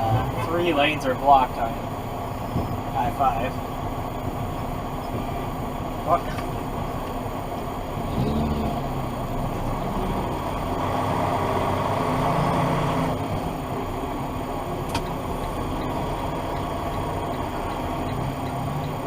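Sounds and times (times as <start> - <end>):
road and engine noise inside car: 0.0 - 19.0.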